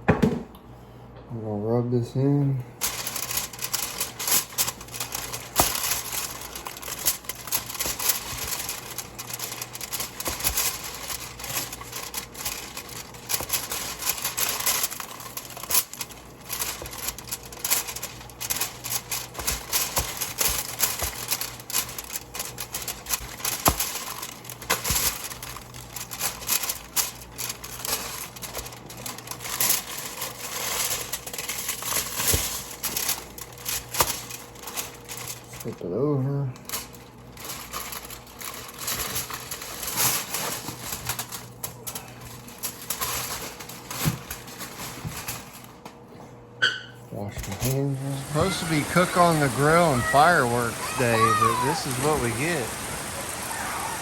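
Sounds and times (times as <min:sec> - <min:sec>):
hands rubbing seasoning into ribs: 0:48.0 - 0:52.5.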